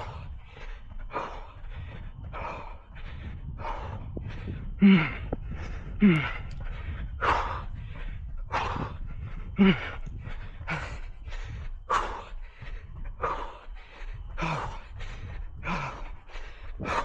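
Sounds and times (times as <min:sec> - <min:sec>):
low rumble: 0:00.0 - 0:17.0
person breathing hard: 0:00.0 - 0:17.0
voiced grunt: 0:06.0 - 0:06.3.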